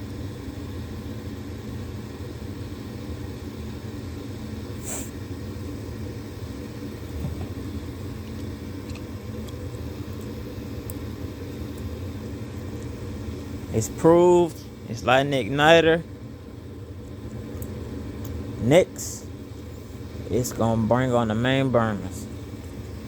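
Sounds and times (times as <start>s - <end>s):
furnace motor humming: 0.0s - 23.0s
short hiss: 4.8s - 5.2s.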